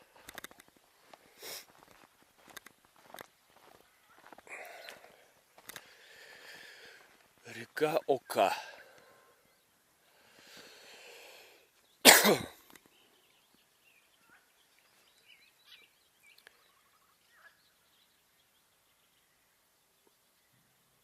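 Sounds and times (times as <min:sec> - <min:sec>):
drawn-in breath: 0:01.2 - 0:01.7, 0:04.4 - 0:07.2, 0:08.6 - 0:11.8
person sneezing: 0:12.1 - 0:12.6
faint bird chirps: 0:12.7 - 0:21.0.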